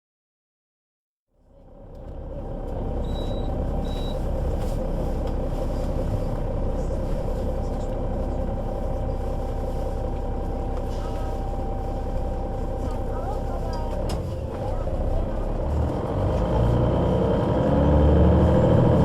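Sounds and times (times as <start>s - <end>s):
bus engine running: 1.4s - 19.0s
short high beeps: 3.0s - 4.2s.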